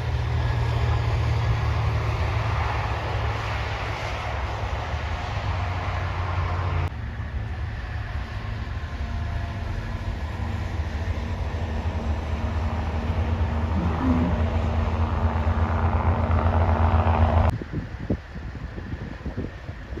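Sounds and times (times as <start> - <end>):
truck engine droning under load: 0.0 - 17.5.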